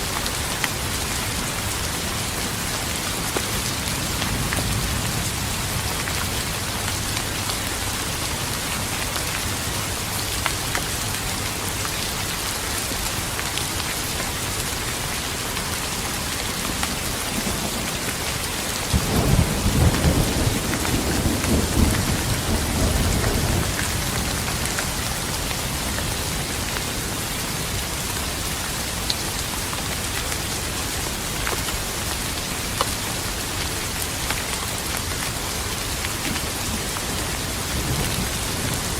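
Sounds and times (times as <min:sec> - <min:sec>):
heavy rain: 0:00.0 - 0:38.9
thunder rumbling: 0:18.9 - 0:26.6.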